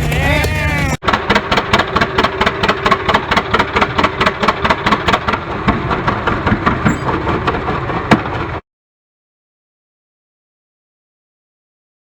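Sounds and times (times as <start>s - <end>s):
sharp crack: 0.0s - 8.5s
tractor engine exhaust popping: 0.0s - 8.6s.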